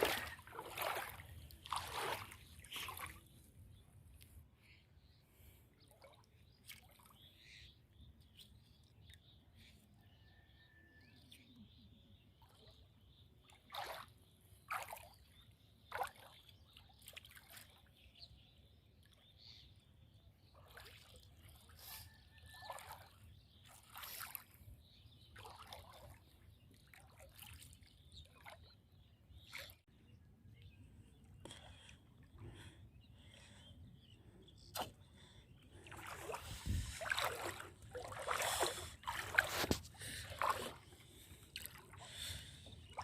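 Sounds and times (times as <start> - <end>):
water splashing and trickling: 0.0 - 3.6, 13.4 - 18.2, 20.4 - 29.9, 35.7 - 43.0.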